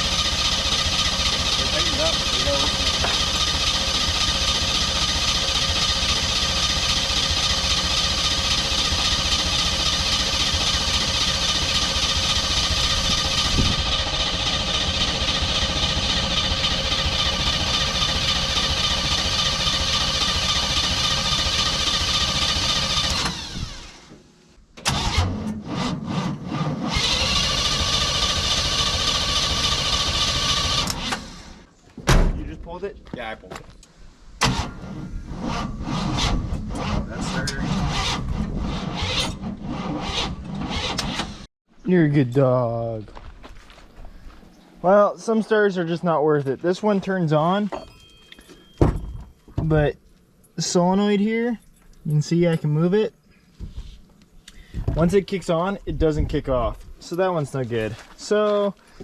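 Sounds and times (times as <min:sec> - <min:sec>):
starter motor whining: 0:00.0 - 0:24.2, 0:24.8 - 0:31.7, 0:34.4 - 0:41.5.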